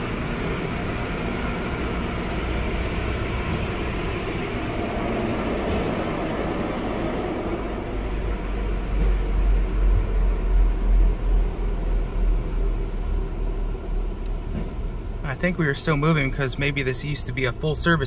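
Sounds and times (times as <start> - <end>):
dryers blowing air: 0.0 - 10.3
low buffeting: 0.0 - 18.0.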